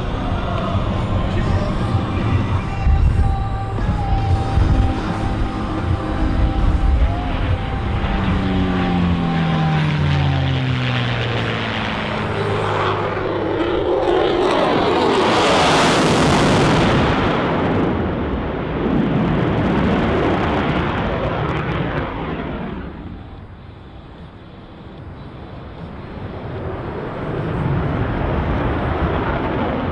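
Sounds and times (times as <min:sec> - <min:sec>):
piston aircraft engine passing: 0:00.0 - 0:17.7
jet roar: 0:00.0 - 0:29.9.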